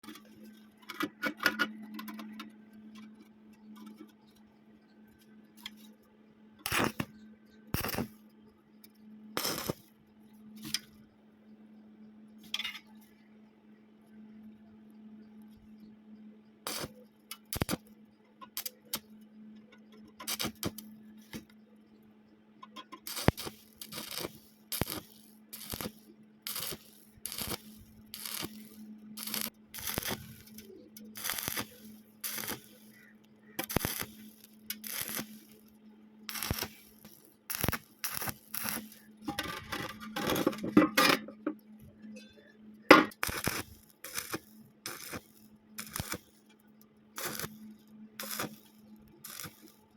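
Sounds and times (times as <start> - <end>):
arc welding crackle: 6.6 - 8.2, 9.4 - 10.0, 16.7 - 17.9, 18.5 - 19.2, 20.1 - 21.5, 22.9 - 40.6, 42.9 - 49.9
steady low hum: 13.0 - 49.9.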